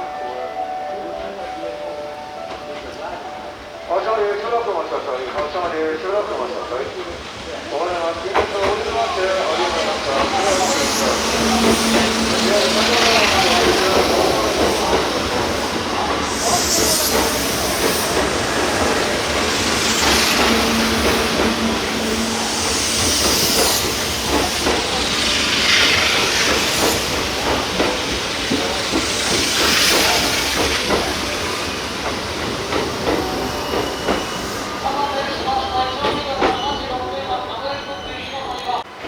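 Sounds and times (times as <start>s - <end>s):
train rumble: 0.0s - 39.0s
train wheels clicking: 4.7s - 38.8s
hissing swells: 8.0s - 38.2s.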